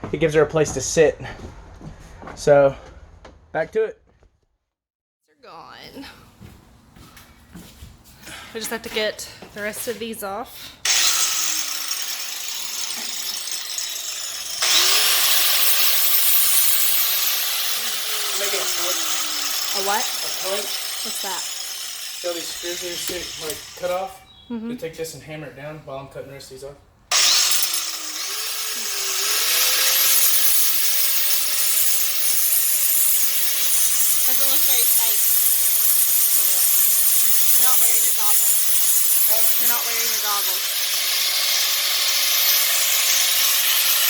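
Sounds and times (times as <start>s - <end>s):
cut-off wheel grinding steel: 10.8s - 24.1s, 27.1s - 44.0s.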